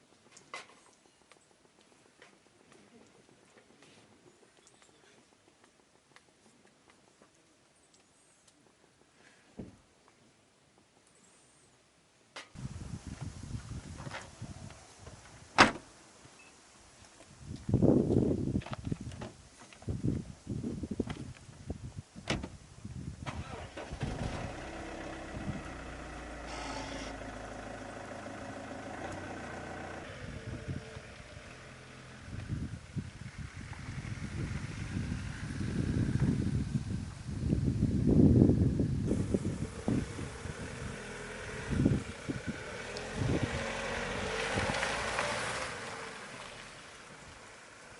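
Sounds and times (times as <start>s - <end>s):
wind gusting on microphone: 12.6s - 15.6s, 17.3s - 25.8s, 29.9s - 47.4s
engine starting and idling: 23.2s - 31.3s
rushing noise with faint hum: 32.2s - 47.4s.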